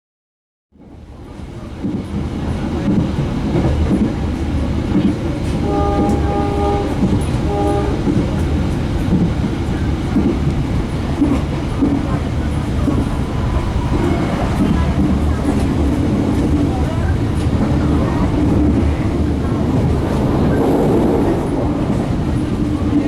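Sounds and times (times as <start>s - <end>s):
train rumbling on board: 0.8s - 23.0s
train horn: 5.4s - 9.0s.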